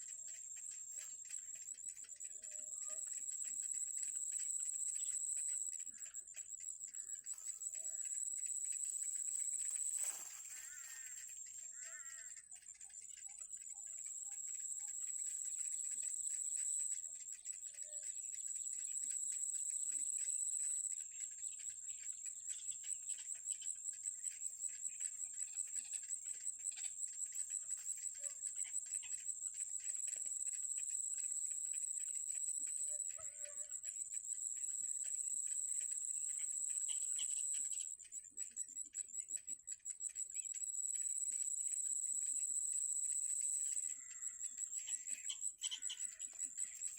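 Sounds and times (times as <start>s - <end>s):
faint bird chirps: 0.0s - 46.9s
high-pitched insect buzz: 7.2s - 12.4s, 21.9s - 38.5s.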